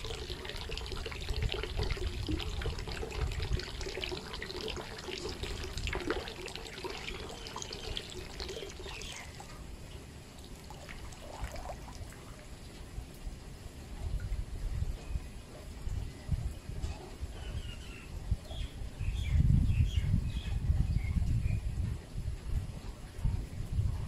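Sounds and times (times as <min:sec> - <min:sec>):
rain splashing: 0:00.0 - 0:14.0
water trickling and dripping: 0:00.0 - 0:24.0.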